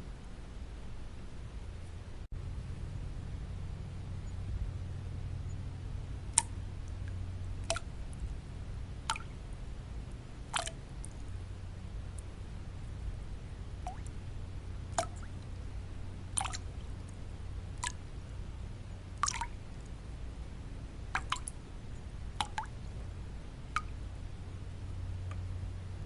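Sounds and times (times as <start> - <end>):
low white-noise rumble: 0.0 - 26.0
water drops plinking: 6.4 - 7.9, 9.1 - 9.3, 10.6 - 11.2, 13.8 - 14.1, 15.0 - 15.3, 16.4 - 16.7, 19.2 - 19.6, 21.2 - 21.5, 22.4 - 22.8.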